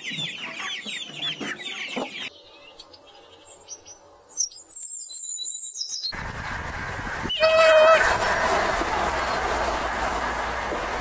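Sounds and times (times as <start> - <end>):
songbird chirps: 0.0 - 6.2.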